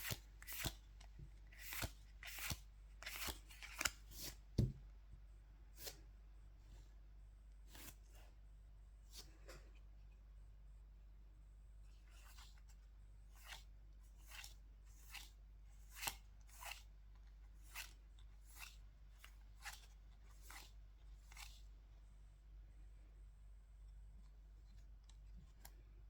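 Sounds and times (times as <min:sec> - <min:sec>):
cards swishing through hand: 0:00.0 - 0:00.8, 0:01.5 - 0:04.7.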